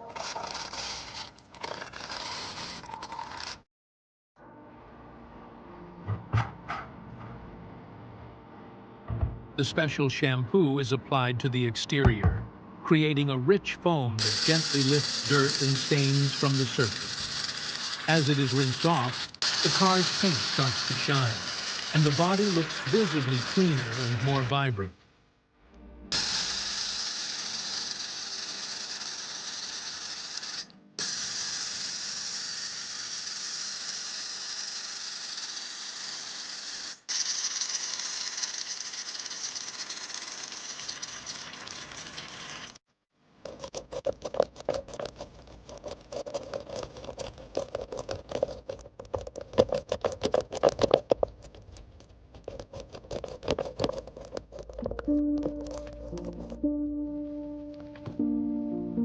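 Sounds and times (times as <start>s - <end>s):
brush scrubbing: 0.0s - 3.6s, 14.2s - 24.5s, 43.4s - 51.6s, 52.3s - 55.0s
water spray hissing: 14.2s - 24.4s.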